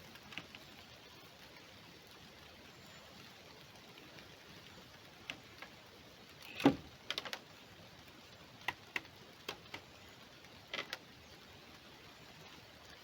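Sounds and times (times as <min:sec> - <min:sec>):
light clicks and taps: 0:04.0 - 0:07.5, 0:08.6 - 0:11.1.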